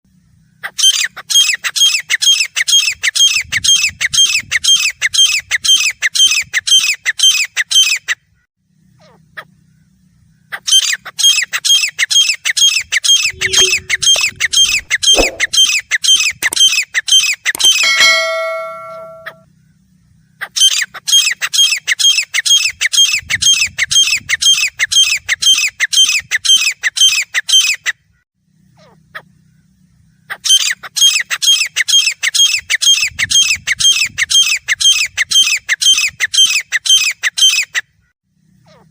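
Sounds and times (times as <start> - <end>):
francolin calling harsh notes: 13.3 - 15.6, 17.6 - 19.4.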